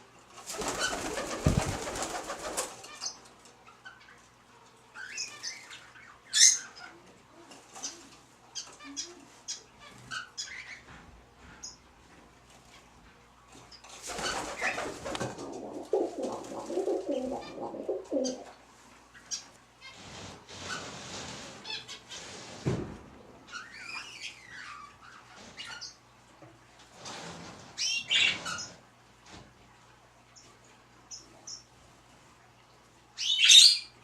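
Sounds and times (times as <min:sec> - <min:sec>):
birds flapping wings: 0:00.4 - 0:02.8, 0:14.0 - 0:17.4.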